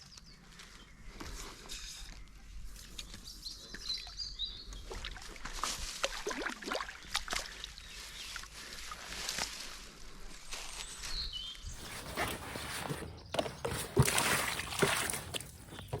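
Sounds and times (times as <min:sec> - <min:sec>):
fish thrashing in water: 0:11.8 - 0:16.0.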